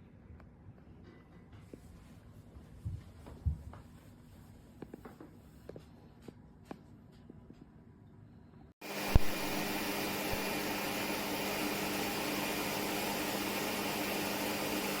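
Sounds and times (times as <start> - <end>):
grooming vacuum whirring: 8.8 - 15.0.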